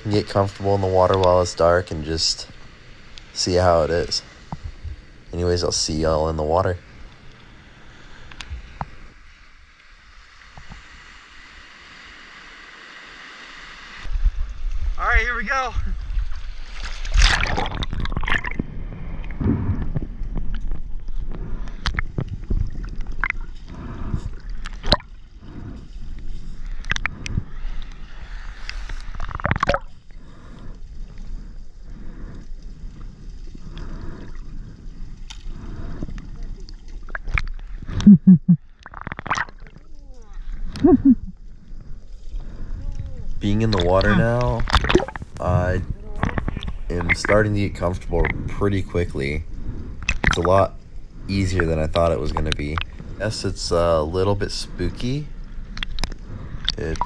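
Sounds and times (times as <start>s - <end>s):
water drips: 0.9s - 1.7s, 43.5s - 45.4s, 50.0s - 50.7s
water sloshing and gurgling: 15.9s - 57.0s
water splash: 16.6s - 18.7s, 29.2s - 29.9s, 43.7s - 45.7s, 50.1s - 50.6s.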